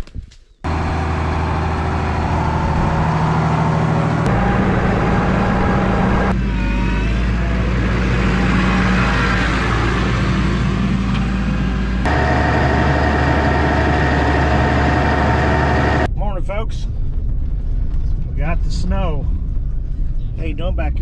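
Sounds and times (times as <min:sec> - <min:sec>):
vehicle engine humming: 0:00.6 - 0:16.1.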